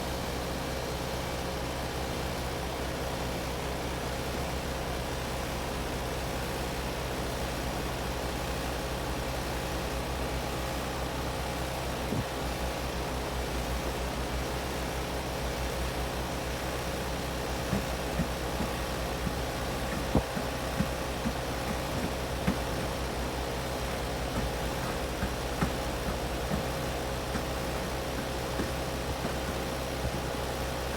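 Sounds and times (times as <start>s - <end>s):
heat pump hum: 0.0s - 30.9s
fan noise: 10.9s - 30.9s.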